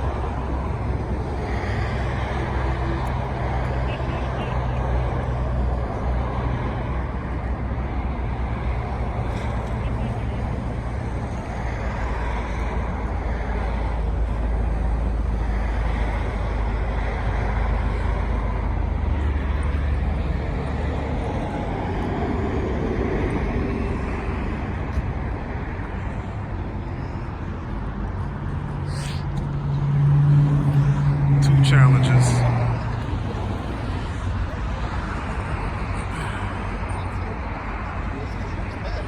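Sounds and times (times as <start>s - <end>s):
car engines rumbling: 0.0s - 39.0s.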